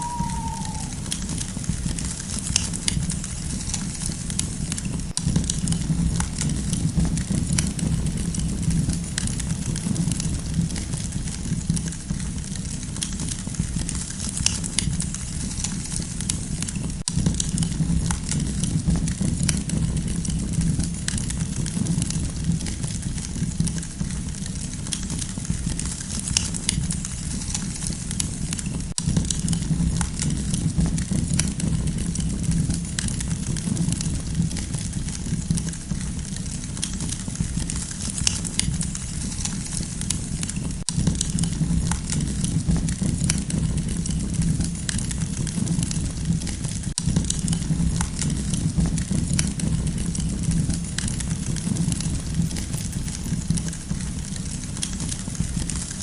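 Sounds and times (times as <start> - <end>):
campfire crackling and popping: 0.0 - 11.9, 47.0 - 56.0
low rush of flame: 47.0 - 56.0.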